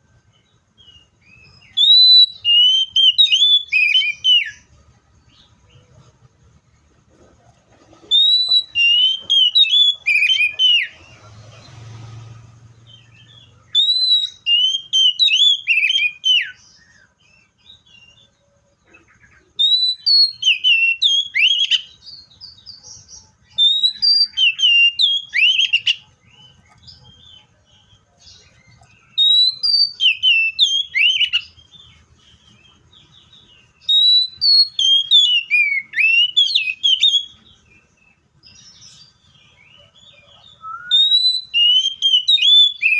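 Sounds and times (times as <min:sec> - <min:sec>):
bird singing whistled phrases: 0:00.8 - 0:04.7, 0:08.1 - 0:11.0, 0:12.9 - 0:18.3, 0:19.2 - 0:32.6, 0:33.2 - 0:37.9, 0:39.7 - 0:42.9.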